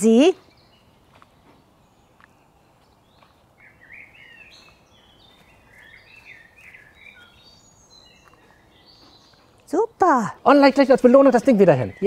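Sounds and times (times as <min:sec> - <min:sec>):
outdoor background hiss: 0:00.0 - 0:12.0
songbird warbling: 0:01.9 - 0:09.6.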